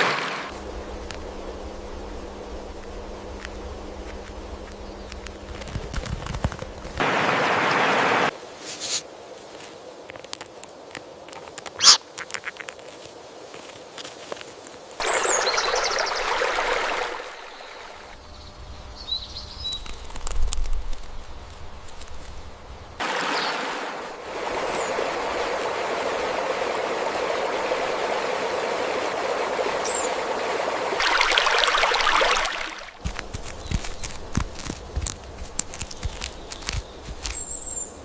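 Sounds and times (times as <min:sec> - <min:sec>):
stream rushing: 0:00.0 - 0:08.4, 0:11.7 - 0:12.7, 0:15.0 - 0:18.2, 0:23.0 - 0:38.0
high chirps: 0:11.8 - 0:12.5.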